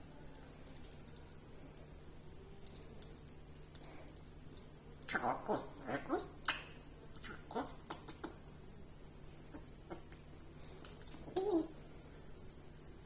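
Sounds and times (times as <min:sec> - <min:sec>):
parrot pitch-sliding vocal sounds: 0:05.0 - 0:08.4.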